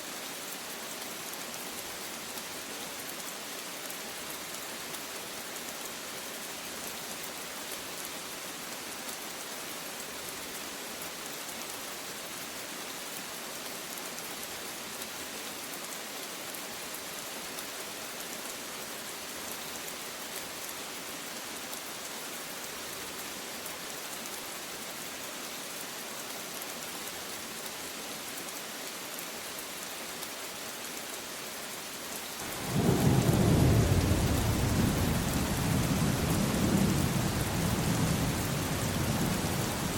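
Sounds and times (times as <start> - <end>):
steady rain hiss: 0.0 - 39.9
thunder rumbling: 32.4 - 39.9.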